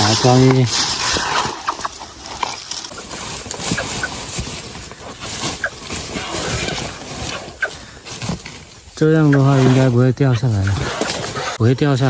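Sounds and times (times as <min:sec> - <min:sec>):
rustling: 0:00.0 - 0:11.8
nestlings peeping: 0:02.8 - 0:06.9.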